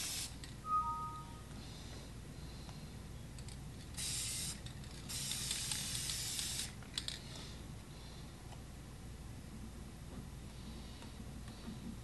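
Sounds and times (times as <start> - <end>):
aerosol spray can hissing: 0.0 - 0.3, 4.0 - 6.7.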